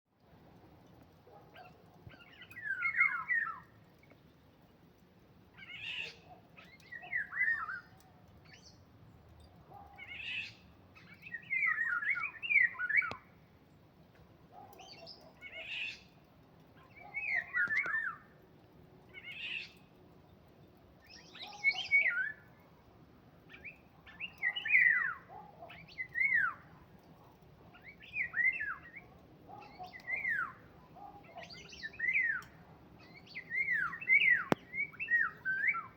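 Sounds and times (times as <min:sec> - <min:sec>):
songbird singing whistled notes: 0:01.6 - 0:04.2, 0:05.6 - 0:08.8, 0:09.4 - 0:13.3, 0:16.8 - 0:18.3, 0:21.0 - 0:22.6, 0:23.5 - 0:26.8, 0:27.7 - 0:35.9.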